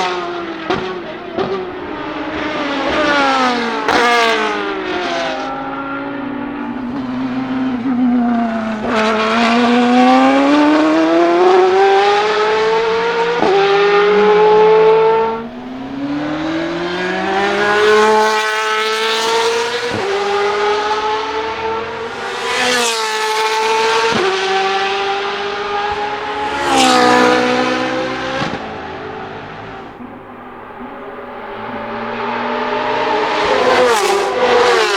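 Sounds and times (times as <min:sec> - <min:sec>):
race car engine accelerating: 0:00.0 - 0:34.9
quick gear upshifts: 0:13.5 - 0:20.6, 0:29.4 - 0:34.9.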